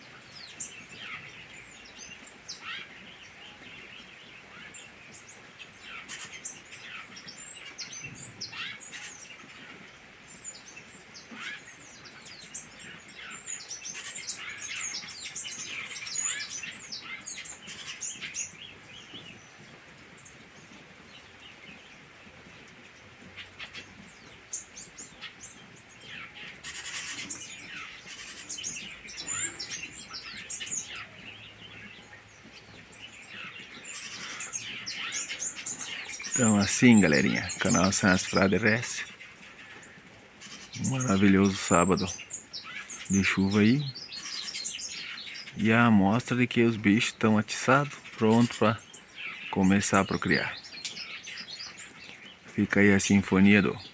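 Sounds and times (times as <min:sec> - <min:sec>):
birds singing and chirping: 0:00.0 - 0:53.9.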